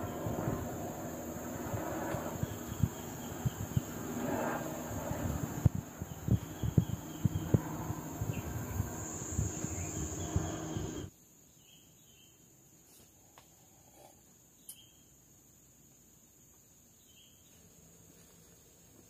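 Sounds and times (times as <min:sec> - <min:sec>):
rushing background noise: 0:00.0 - 0:11.1
faint chirps: 0:00.0 - 0:15.6
insects droning high-pitched: 0:00.0 - 0:19.0.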